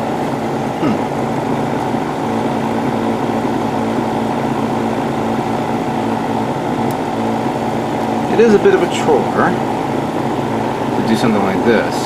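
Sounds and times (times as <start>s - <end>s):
airbrush compressor humming: 0.0s - 12.0s.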